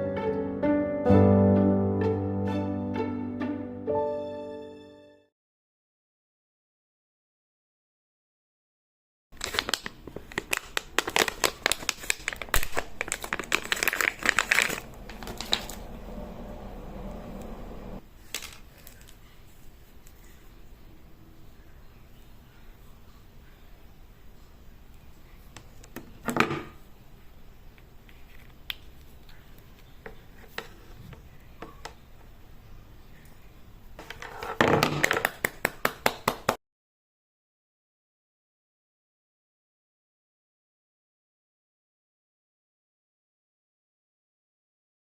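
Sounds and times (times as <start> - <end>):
plastic packaging crinkling: 9.4 - 16.2, 18.2 - 19.6.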